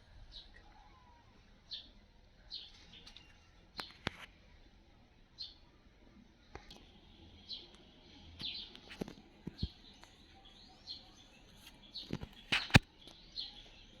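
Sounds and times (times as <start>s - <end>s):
bird chirping: 0.0s - 5.8s, 6.5s - 14.0s
sharp clicks or knocks: 12.1s - 12.9s.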